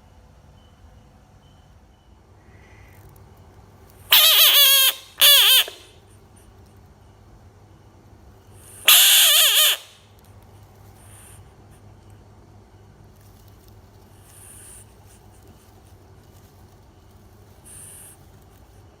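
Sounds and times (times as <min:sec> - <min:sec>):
frog high-pitched call: 0:04.1 - 0:06.0, 0:08.6 - 0:10.1.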